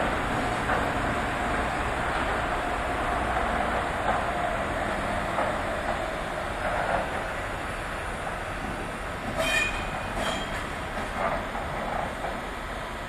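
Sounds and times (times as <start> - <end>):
train rumbling on tracks: 0.0 - 13.0
high wheel squeals: 9.4 - 10.7.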